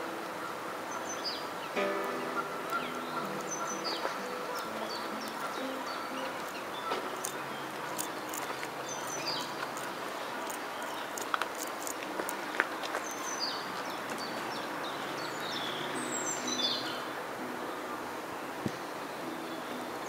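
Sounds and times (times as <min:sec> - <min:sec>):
outdoor background noise: 0:00.0 - 0:20.0
small birds chirping: 0:00.8 - 0:20.0
sharp ticks: 0:01.8 - 0:12.7.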